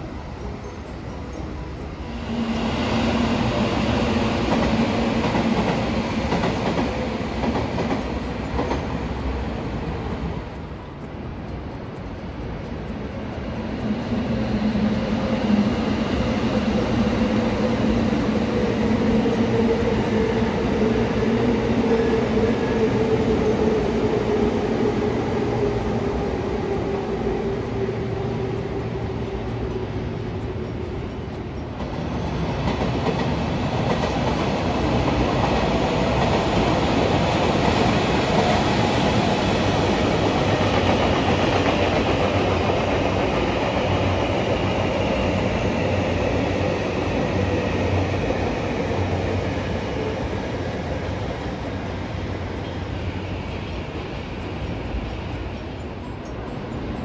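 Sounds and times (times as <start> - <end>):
train running noise rushing: 0.0 - 57.0.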